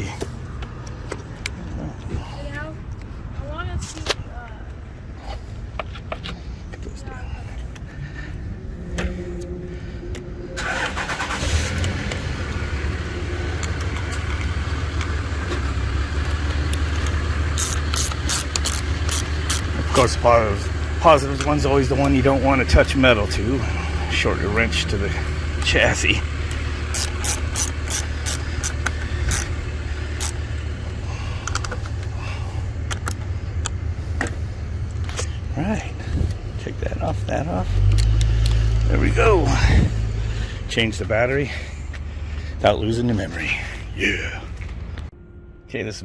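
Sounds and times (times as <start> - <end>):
steady low hum: 0.0 - 46.0
engine starting and idling: 9.1 - 44.9
wrench clicking on metal nut: 16.9 - 19.7, 26.9 - 29.5, 30.2 - 30.4.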